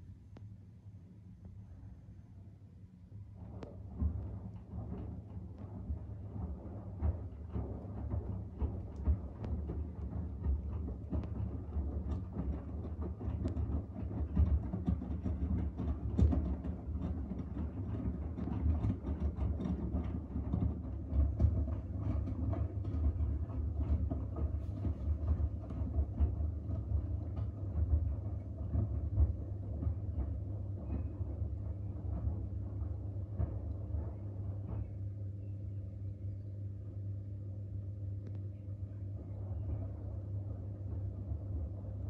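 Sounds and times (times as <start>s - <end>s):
washing machine motor rumble: 1.2s - 42.0s
laundry knocking in drum: 3.9s - 34.9s.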